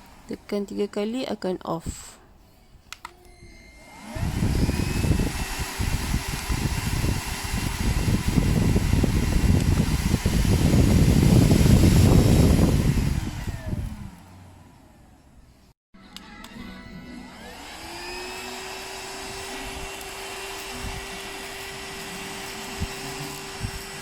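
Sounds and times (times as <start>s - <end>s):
vacuum motor whine: 3.2s - 15.4s, 16.4s - 24.0s
rush of air: 4.1s - 14.1s.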